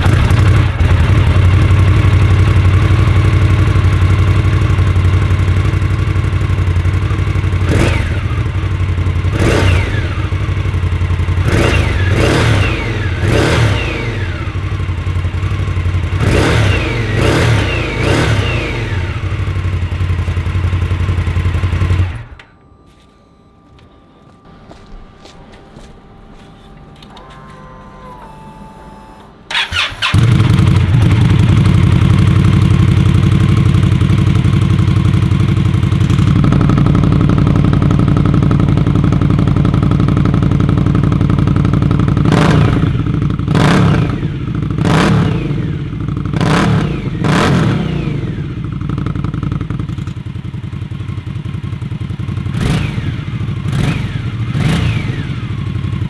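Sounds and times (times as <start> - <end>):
motorcycle engine idling: 0.0 - 22.4, 29.5 - 56.0
motorcycle throttle revving: 0.0 - 22.4, 27.6 - 56.0.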